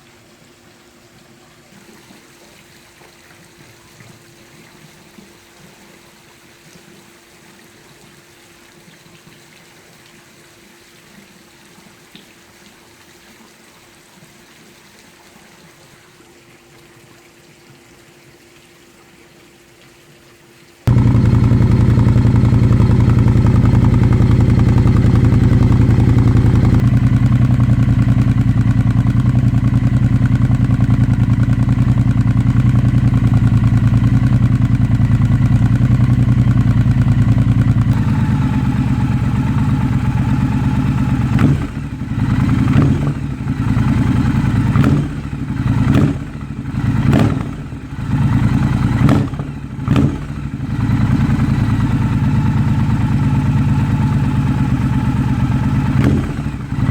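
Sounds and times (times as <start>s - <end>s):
engine throttle blips: 20.9s - 56.9s
motorcycle engine idling: 20.9s - 56.9s.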